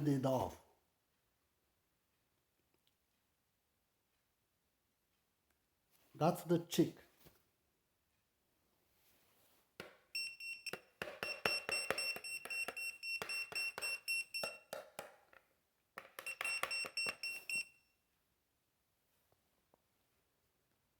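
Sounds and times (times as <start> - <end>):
high-pitched electronic beeps: 10.2 - 14.7, 16.2 - 17.7.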